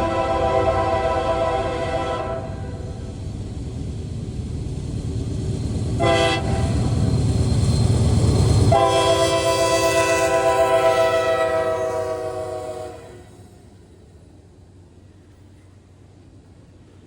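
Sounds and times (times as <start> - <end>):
train horn blasts: 0.0 - 3.0, 6.0 - 6.8, 8.7 - 13.4
train rumbling past: 0.0 - 17.0.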